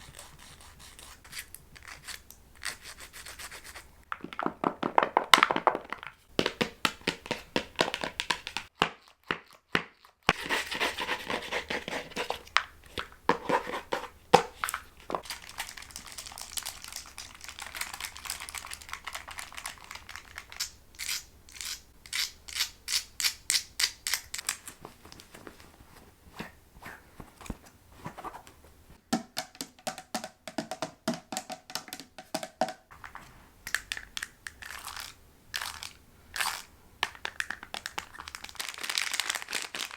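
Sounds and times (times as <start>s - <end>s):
crinkling: 10.2s - 22.8s, 23.8s - 29.0s, 32.9s - 39.9s.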